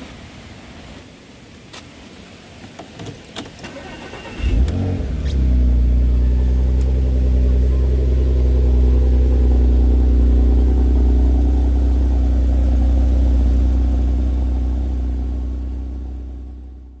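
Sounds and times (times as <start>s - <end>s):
car engine and road rumble: 0.0s - 17.0s
faint hum: 5.0s - 17.0s.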